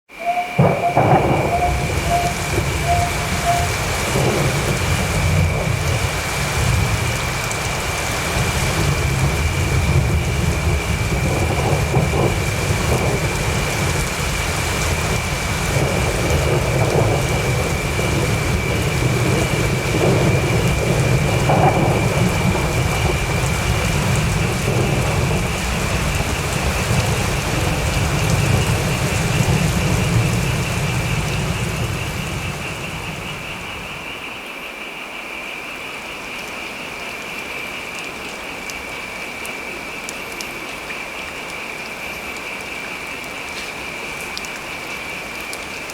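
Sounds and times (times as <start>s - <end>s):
thin high tone: 0.1s - 4.0s
low rumble of thunder: 0.1s - 34.2s
steady rain: 0.1s - 45.9s.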